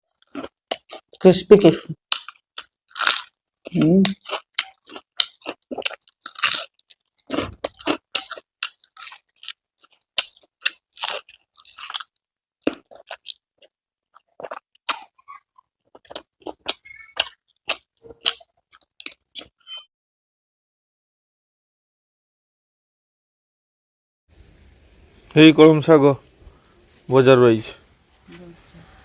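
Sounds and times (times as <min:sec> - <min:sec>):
chewing crispy fried food: 0:00.0 - 0:19.6.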